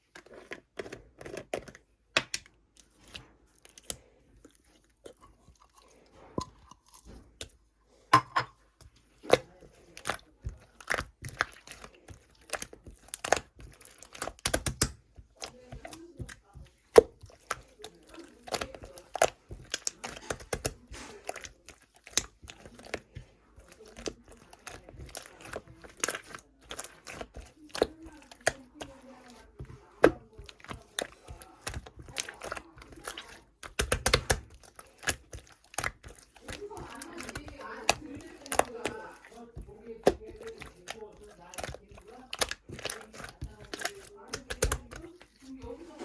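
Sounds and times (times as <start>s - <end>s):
slime squeezed with sticky pops: 31.6s - 36.0s.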